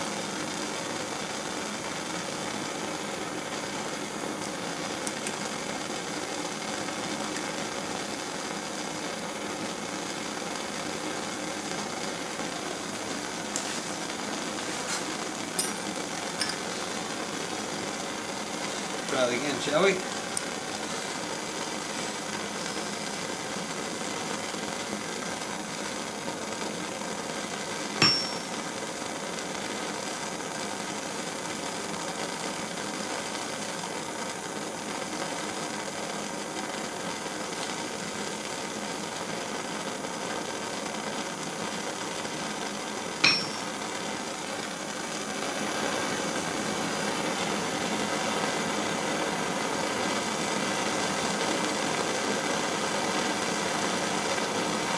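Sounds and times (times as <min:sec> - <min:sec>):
propane torch hissing: 0:00.0 - 0:54.9
hammer striking anvil: 0:28.0 - 0:28.6, 0:43.2 - 0:43.8.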